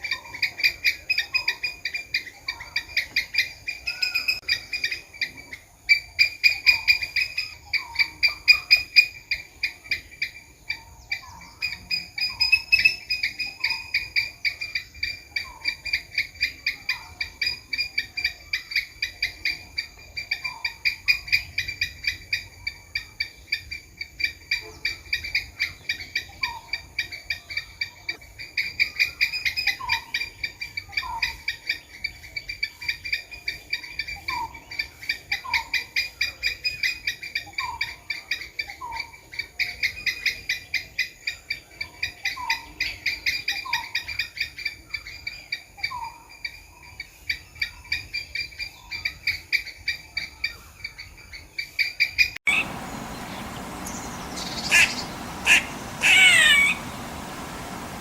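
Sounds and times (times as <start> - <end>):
soft short falling calls: 52.5 - 58.0
squirrel chattering clicks: 53.4 - 56.8.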